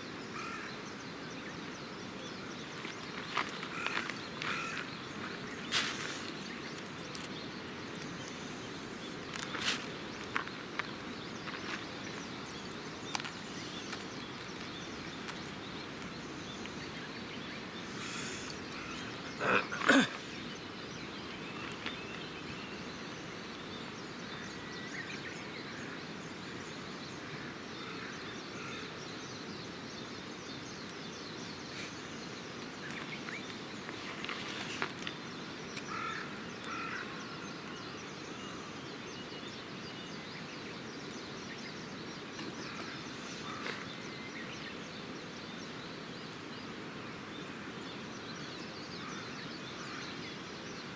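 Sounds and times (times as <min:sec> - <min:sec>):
outdoor background hiss: 0:00.0 - 0:50.9
faint bird chirps: 0:00.3 - 0:34.8
campfire crackling and popping: 0:02.2 - 0:22.2.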